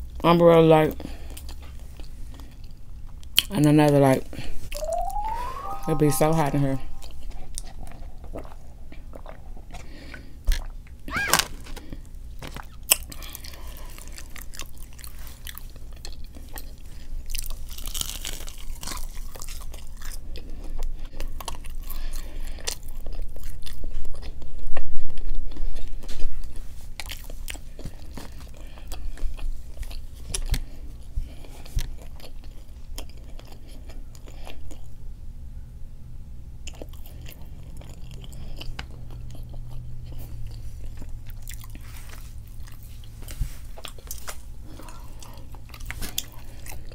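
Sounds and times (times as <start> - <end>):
chewing and crunching food: 0.0 - 4.6, 7.6 - 35.4, 36.4 - 46.9.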